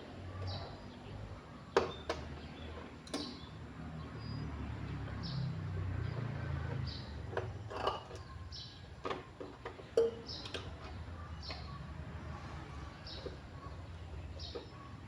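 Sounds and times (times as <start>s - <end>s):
small bird chirping: 12.4s - 15.0s.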